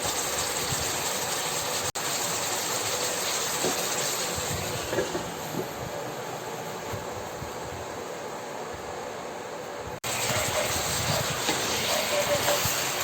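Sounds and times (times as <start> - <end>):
food sizzling in oil: 0.0 - 6.2, 10.0 - 13.0.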